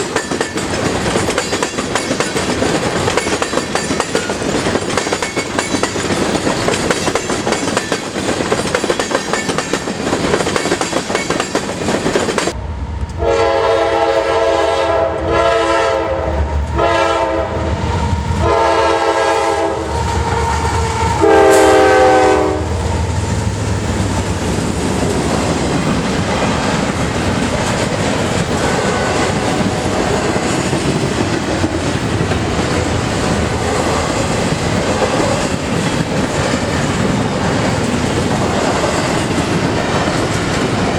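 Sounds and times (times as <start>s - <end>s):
train wheels clattering over rails: 0.0s - 12.6s, 22.9s - 40.9s
locomotive horn blasts: 13.2s - 17.7s, 18.4s - 22.9s.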